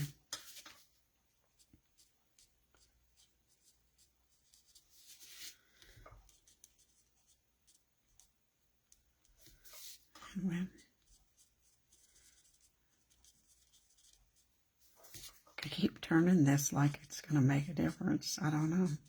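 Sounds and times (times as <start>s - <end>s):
marker scratching on cardstock: 1.6s - 5.6s, 6.3s - 8.3s, 10.8s - 16.0s.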